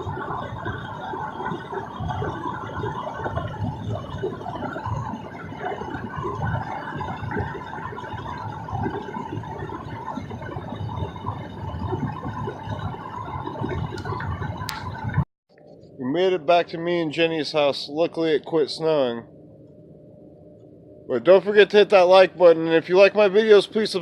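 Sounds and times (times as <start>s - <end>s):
car tyres and engine rumble: 0.0s - 15.2s.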